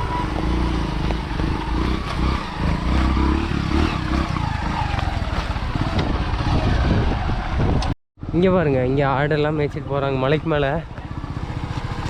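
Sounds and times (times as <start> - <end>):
motorcycle engine rumble: 0.0 - 12.0.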